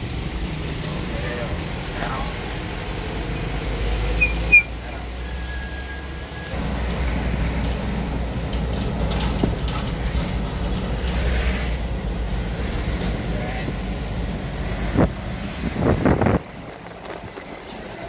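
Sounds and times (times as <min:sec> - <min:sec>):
heavy vehicle engines rumbling: 0:00.0 - 0:18.0
short shrill peeps: 0:04.2 - 0:04.8.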